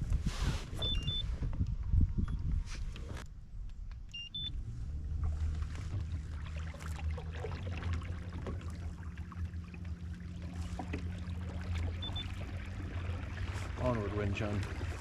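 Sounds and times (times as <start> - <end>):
short electronic beeps: 0.8 - 1.2, 4.1 - 4.6, 12.0 - 12.4
faint water splashing: 4.9 - 15.0.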